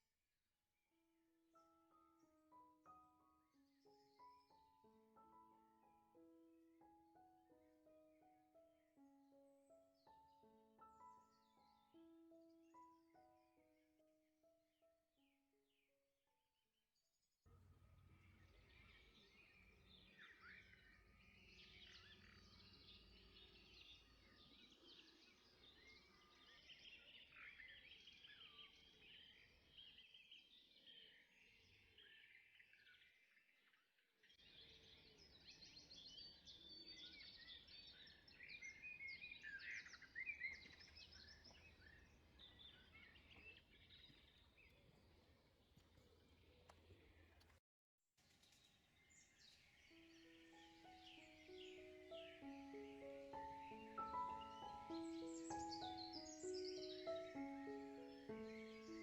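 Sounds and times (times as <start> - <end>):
small birds chirping: 18.0 - 47.6, 48.2 - 59.0.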